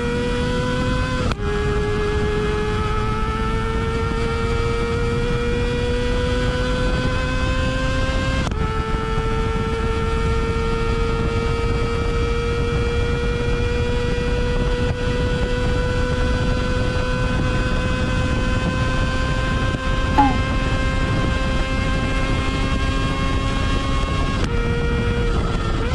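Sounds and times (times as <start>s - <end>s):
low wind rumble: 0.0s - 25.9s
high-pitched motorcycle exhaust: 15.0s - 25.9s.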